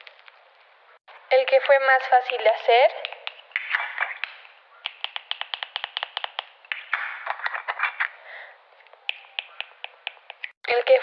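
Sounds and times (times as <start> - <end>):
fidget toy clicking and tapping: 4.2 - 6.5, 9.1 - 10.9.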